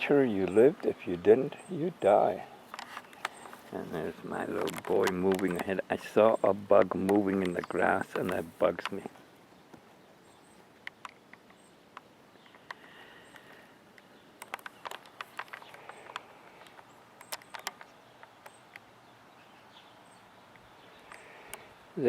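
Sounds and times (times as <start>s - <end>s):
small clicks and rustles: 2.6s - 18.9s, 20.5s - 21.8s.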